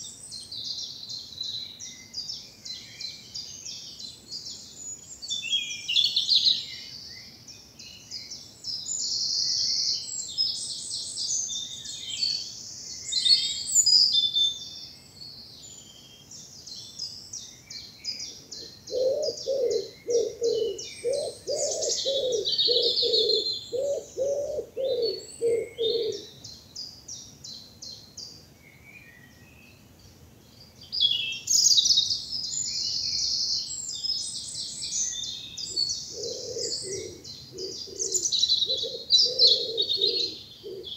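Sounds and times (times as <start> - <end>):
songbirds chirping and trilling: 0.0 - 40.9
pigeon cooing: 18.9 - 26.3, 36.1 - 40.9.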